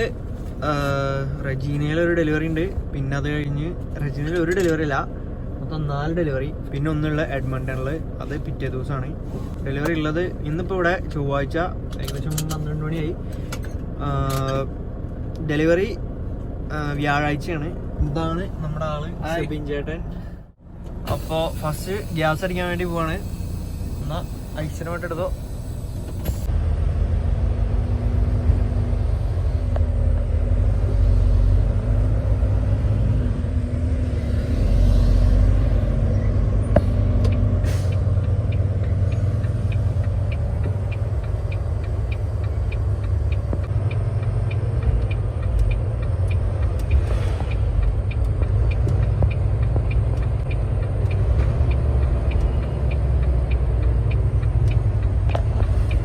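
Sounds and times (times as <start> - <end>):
diesel truck engine rumbling: 0.0 - 56.0
light ticking: 36.7 - 56.0.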